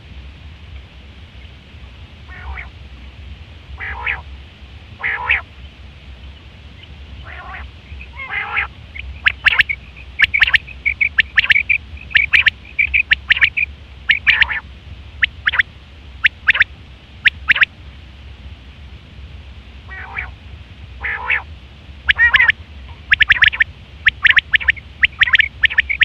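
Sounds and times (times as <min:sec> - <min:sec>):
low steady hum: 0:00.0 - 0:26.0
harsh raspy bird call: 0:02.3 - 0:02.7, 0:03.8 - 0:04.3, 0:05.0 - 0:05.5, 0:07.2 - 0:14.6, 0:19.9 - 0:20.4, 0:21.0 - 0:21.5, 0:22.1 - 0:26.0
quail calling: 0:02.3 - 0:02.7, 0:03.8 - 0:04.3, 0:05.0 - 0:05.5, 0:06.8 - 0:14.6, 0:15.2 - 0:17.7, 0:19.9 - 0:20.4, 0:21.0 - 0:26.0.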